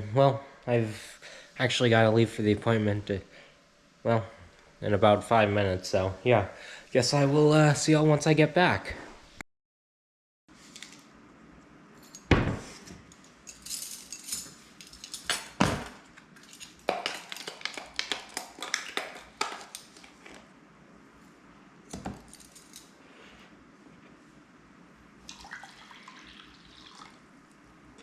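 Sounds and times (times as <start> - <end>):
small hard objects clinking: 16.4 - 20.0.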